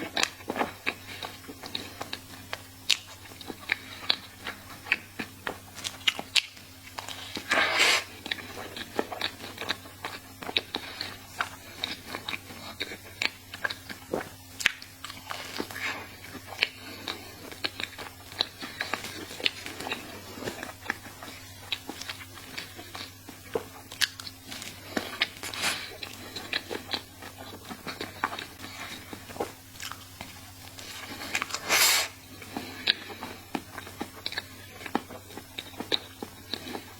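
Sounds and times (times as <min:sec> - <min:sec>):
soft chewing: 0:00.0 - 0:36.9.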